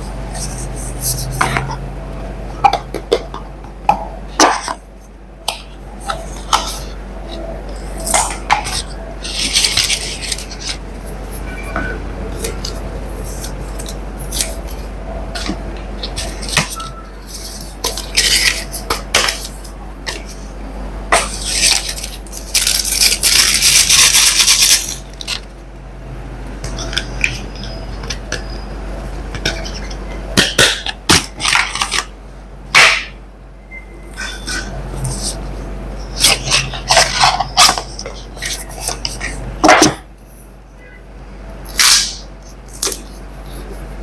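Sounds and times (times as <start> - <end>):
packaging rustling and scraping: 6.0 - 20.5, 21.2 - 25.5, 36.2 - 40.0
hard packaging clicks and clatter: 15.4 - 20.4.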